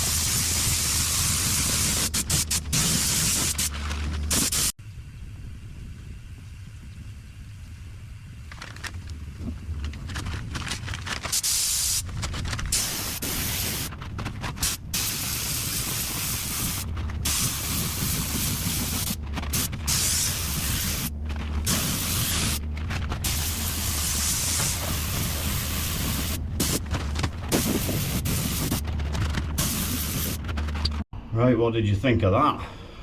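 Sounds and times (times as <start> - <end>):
paint spray gun hissing: 0.0 - 3.7, 4.3 - 4.7, 11.4 - 12.0, 12.7 - 13.9, 14.6 - 21.1, 21.7 - 22.6, 23.3 - 26.8, 29.6 - 30.4
steady low hum: 1.7 - 33.0.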